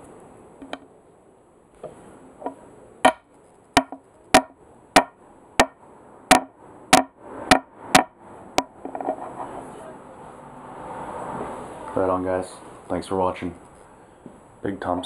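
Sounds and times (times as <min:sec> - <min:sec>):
sharp hollow knocks: 0:01.8 - 0:09.2.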